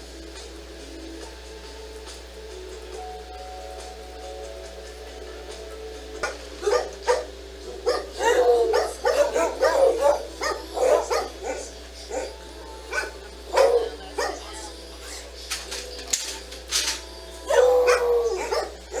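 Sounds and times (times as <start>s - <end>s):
dog barking: 6.2s - 15.3s, 17.4s - 19.0s.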